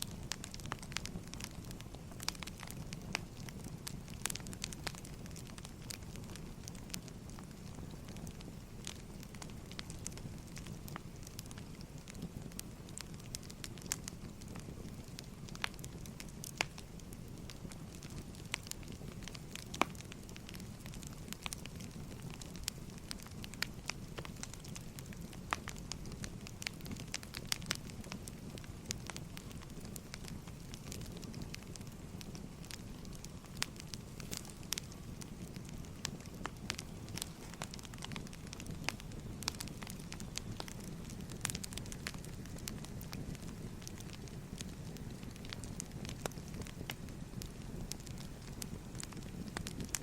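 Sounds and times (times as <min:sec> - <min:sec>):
firewood crackling and popping: 0:00.0 - 0:50.0
low rumble of fire: 0:00.0 - 0:50.0.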